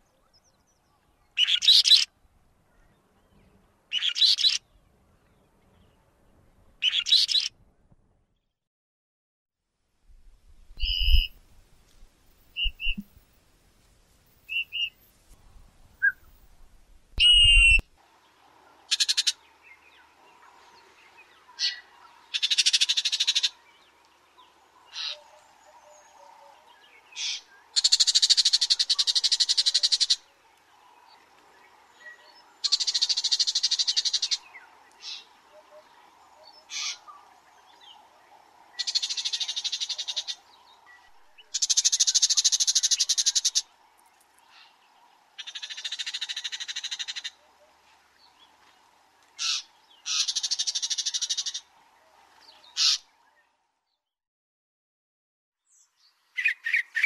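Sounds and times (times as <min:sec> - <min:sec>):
bird sharp single notes: 0:12.6 - 0:13.2, 0:17.2 - 0:17.8
bird harsh rattling calls: 0:49.4 - 0:51.6, 0:52.8 - 0:53.0.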